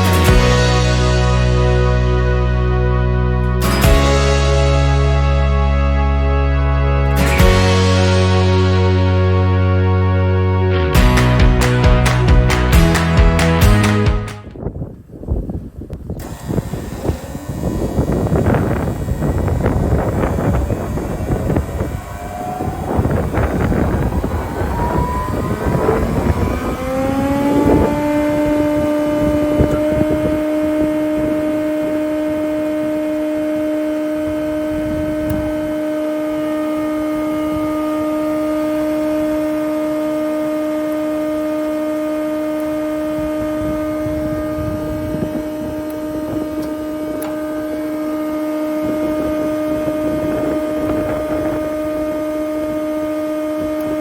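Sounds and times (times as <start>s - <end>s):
thickness planer motor whine: 16.2s - 54.0s.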